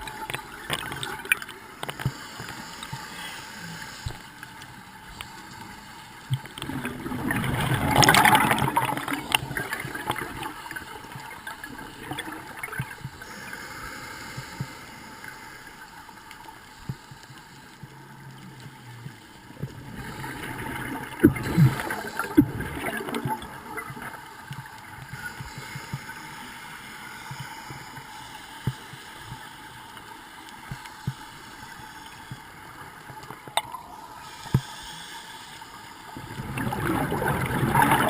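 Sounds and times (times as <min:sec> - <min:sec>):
rush of bubbles: 0:06.6 - 0:13.0, 0:19.7 - 0:24.3, 0:36.2 - 0:38.0
water gurgling and bubbling: 0:06.6 - 0:13.0, 0:19.6 - 0:24.3, 0:36.2 - 0:38.0.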